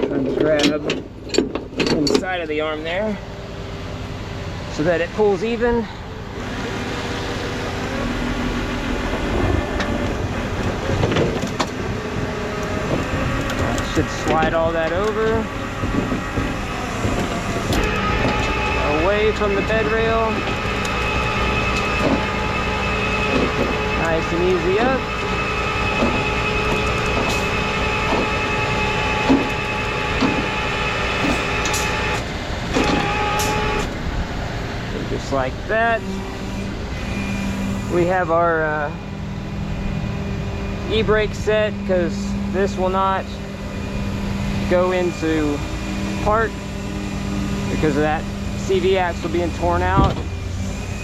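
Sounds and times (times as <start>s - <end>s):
diesel engine running: 0.0s - 51.0s
hydraulics whining: 0.0s - 51.0s.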